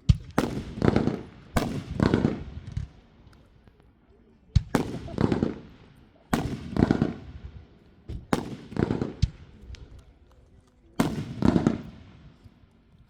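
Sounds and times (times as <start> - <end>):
fireworks bangs with echo: 0.0 - 3.0, 4.6 - 9.6, 11.0 - 12.4.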